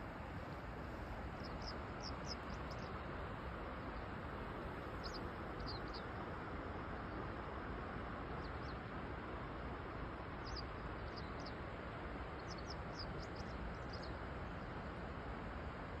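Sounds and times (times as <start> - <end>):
outdoor background rush: 0.0 - 16.0
small bird chirping: 5.0 - 6.1, 12.4 - 14.1.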